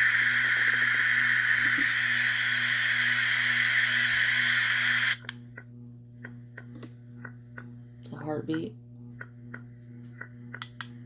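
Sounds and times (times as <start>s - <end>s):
white noise hiss from speaker: 0.0s - 5.2s.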